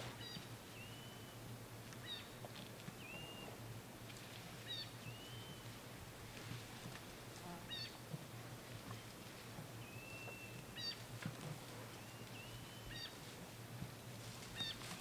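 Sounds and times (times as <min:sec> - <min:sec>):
faint low hum: 0:00.0 - 0:15.0
birds whistling and chirping: 0:00.2 - 0:02.3, 0:02.9 - 0:03.6, 0:04.7 - 0:05.8, 0:09.8 - 0:11.0, 0:11.9 - 0:13.2
faint crackles: 0:01.8 - 0:15.0.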